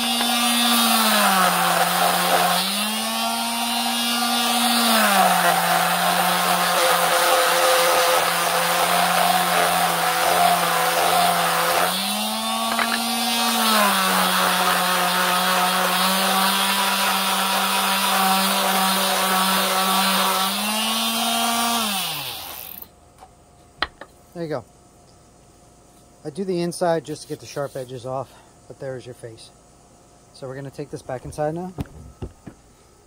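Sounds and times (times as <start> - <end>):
electric sander running on wood: 0.0 - 22.8.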